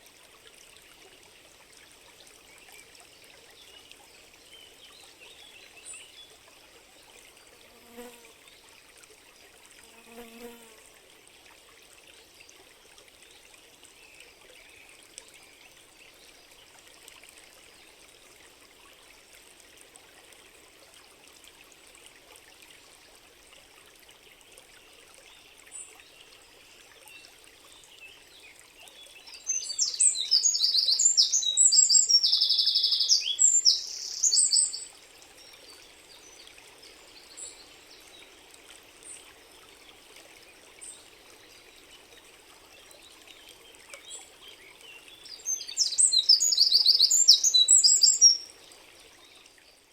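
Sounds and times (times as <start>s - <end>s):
stream trickling: 0.0s - 49.9s
songbird trilling: 29.5s - 34.9s, 45.5s - 48.4s.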